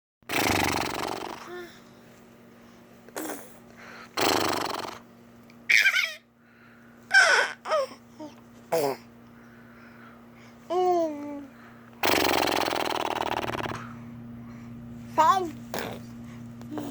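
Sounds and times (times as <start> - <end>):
breathy snort-like blows: 0.3 - 1.5, 3.2 - 5.0, 12.0 - 13.8.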